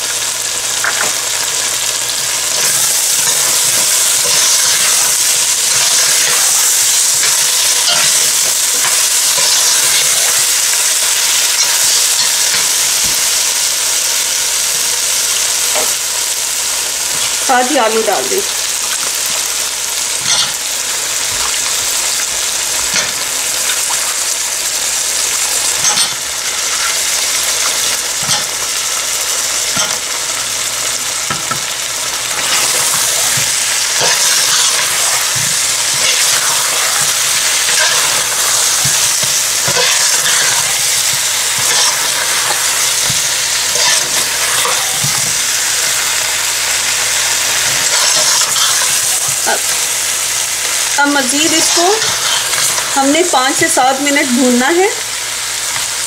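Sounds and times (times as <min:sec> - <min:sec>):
meat sizzling in hot oil: 0:00.0 - 0:56.0
metal spatula scraping pot: 0:32.3 - 0:45.2, 0:47.5 - 0:49.7.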